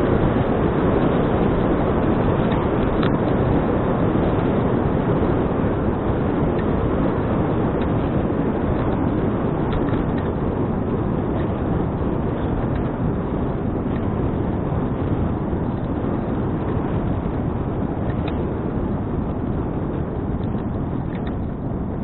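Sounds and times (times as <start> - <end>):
wind rush on microphone: 0.0 - 22.0.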